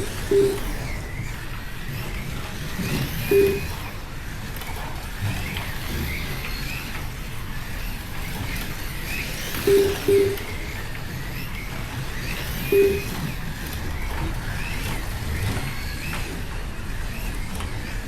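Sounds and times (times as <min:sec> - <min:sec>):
short low beeps: 0:00.0 - 0:00.8, 0:03.3 - 0:03.8, 0:09.7 - 0:10.6, 0:12.8 - 0:13.2
slot car motors whirring: 0:00.0 - 0:17.9.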